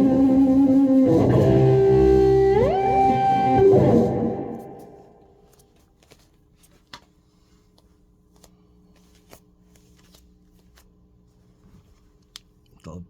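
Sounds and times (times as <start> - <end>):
guitar sustained notes: 0.0 - 5.2.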